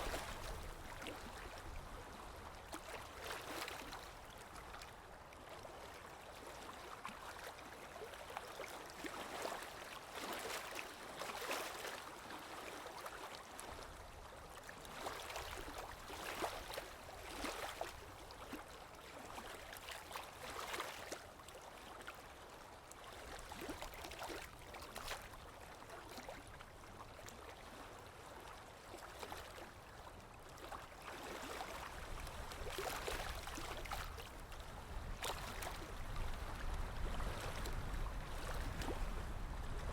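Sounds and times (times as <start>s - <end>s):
water flowing and splashing: 0.0s - 4.0s, 30.5s - 39.9s.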